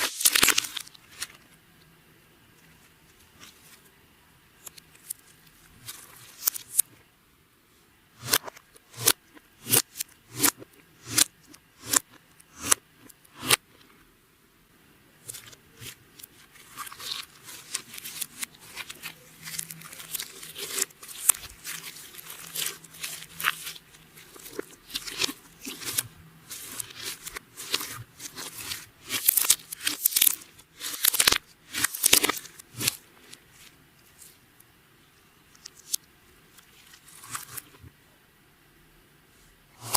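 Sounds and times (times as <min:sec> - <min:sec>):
slime popping and crackling: 0:16.6 - 0:33.0.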